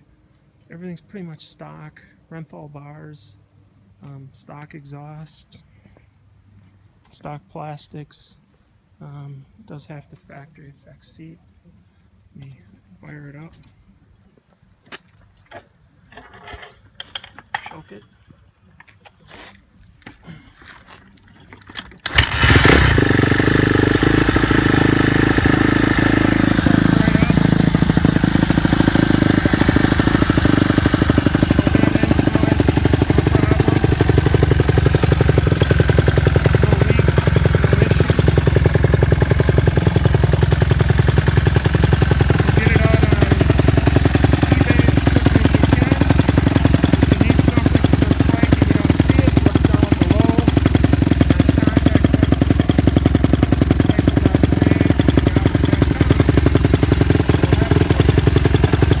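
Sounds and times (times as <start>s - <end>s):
dirt bike engine idling: 22.1s - 59.0s.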